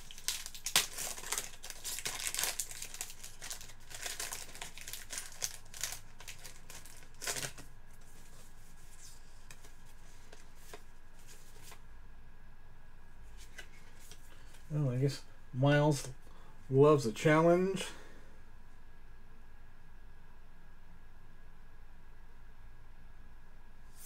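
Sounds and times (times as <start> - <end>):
wrapper crinkling and tearing: 0.0 - 7.7.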